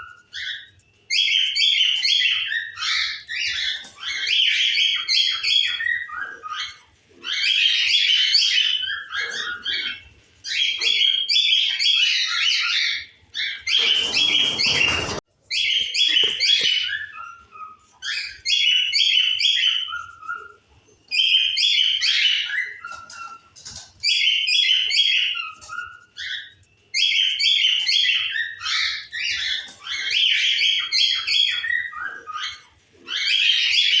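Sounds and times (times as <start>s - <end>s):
cage birds chirping: 0.0s - 34.0s.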